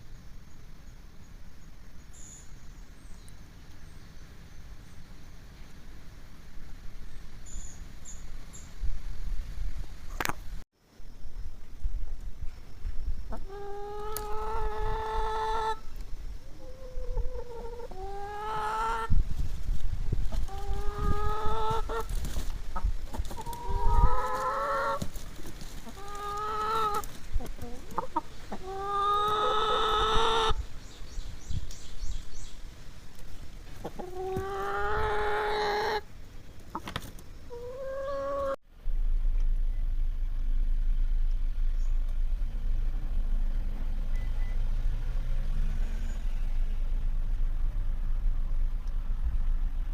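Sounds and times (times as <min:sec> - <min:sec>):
hens squawking: 0:13.3 - 0:15.8, 0:16.5 - 0:19.1, 0:20.3 - 0:22.1, 0:22.8 - 0:30.6, 0:33.8 - 0:36.1, 0:36.7 - 0:38.6
steady low hum: 0:38.6 - 0:49.9.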